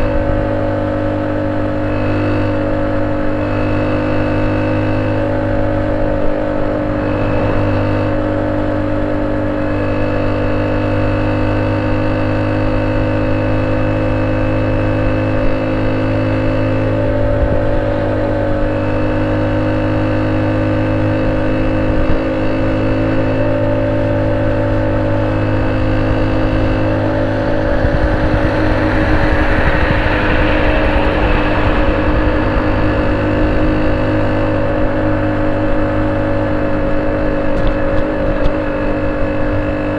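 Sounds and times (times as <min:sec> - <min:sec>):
motorcycle engine idling: 0:13.6 - 0:39.9.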